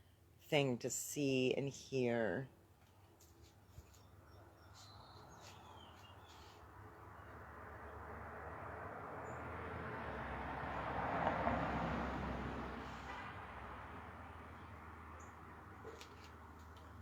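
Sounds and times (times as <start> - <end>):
bird chirps: 3.6 - 6.6
vehicle passing on road: 4.7 - 17.0.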